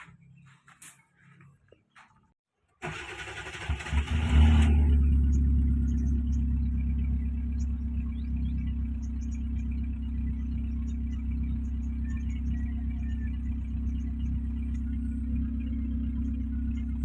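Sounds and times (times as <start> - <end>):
starter motor cranking: 2.8 - 4.7
car engine idling: 4.8 - 17.0.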